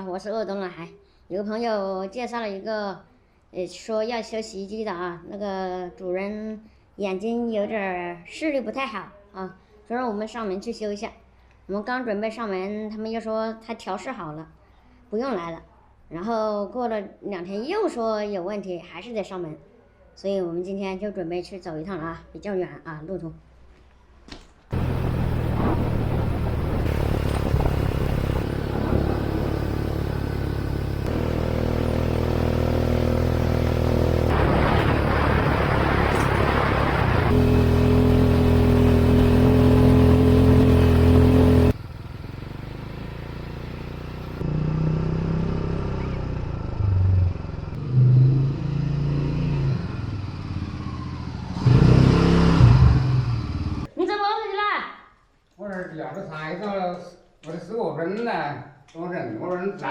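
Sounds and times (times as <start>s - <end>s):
vehicle engine running while driving: 24.7s - 53.9s.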